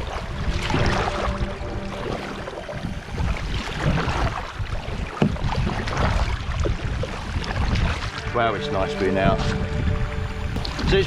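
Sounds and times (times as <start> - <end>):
water swishing around kayak: 0.0 - 11.0
wind rumbling on microphone: 0.0 - 11.0.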